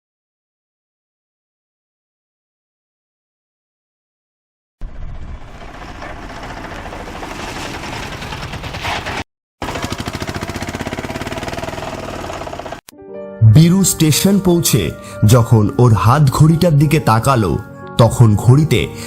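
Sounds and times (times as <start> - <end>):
fast mechanical rattle: 4.8 - 12.8.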